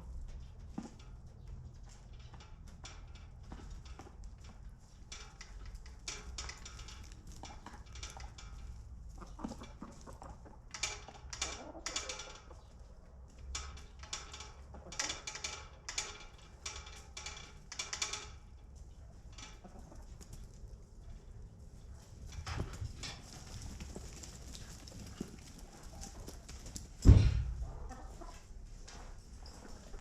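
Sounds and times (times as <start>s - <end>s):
chickens clucking: 9.1s - 10.7s, 19.6s - 20.4s, 27.6s - 28.4s.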